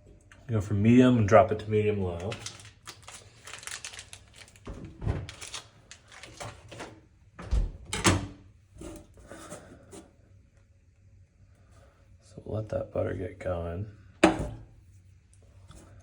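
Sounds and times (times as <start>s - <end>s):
kitchen knocks and clatters: 6.3s - 9.0s, 14.2s - 14.7s.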